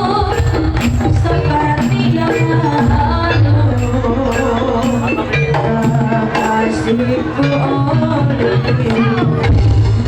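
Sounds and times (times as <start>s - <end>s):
ensemble music with drums: 0.0s - 10.0s.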